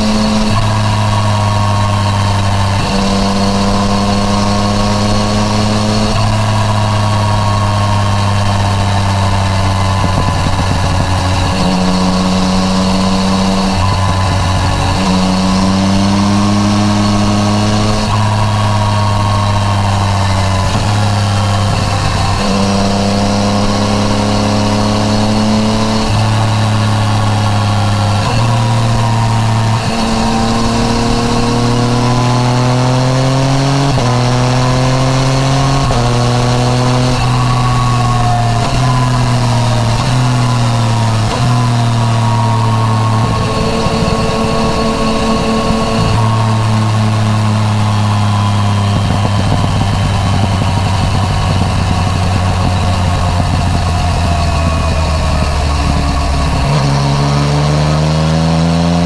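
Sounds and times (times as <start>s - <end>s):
engine pitch jumping on gear changes: 0.0s - 59.0s
motorcycle engine under way: 0.0s - 59.0s.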